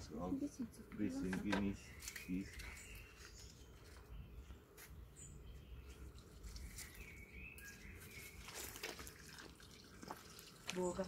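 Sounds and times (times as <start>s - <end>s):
faint bird chirps: 1.0s - 9.0s.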